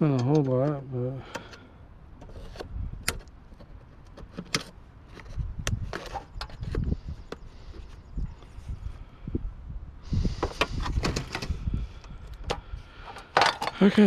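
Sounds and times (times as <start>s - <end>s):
sharp clicks and light knocks: 0.0s - 1.6s.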